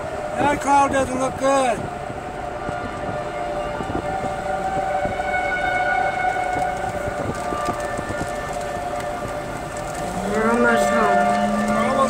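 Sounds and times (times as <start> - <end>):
car road rumble: 0.0 - 12.0
warning sirens steady tone: 0.0 - 12.0.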